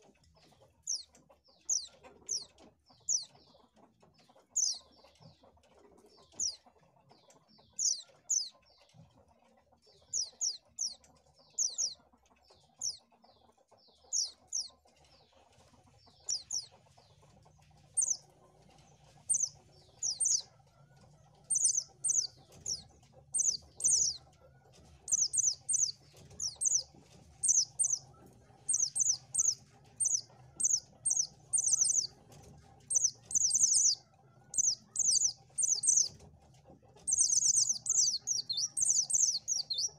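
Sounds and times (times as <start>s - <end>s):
bird chirping very high: 18.0s - 18.2s, 19.3s - 20.4s, 21.5s - 22.8s, 23.4s - 24.2s, 25.1s - 28.0s, 28.7s - 32.1s, 32.9s - 36.1s, 37.1s - 39.9s.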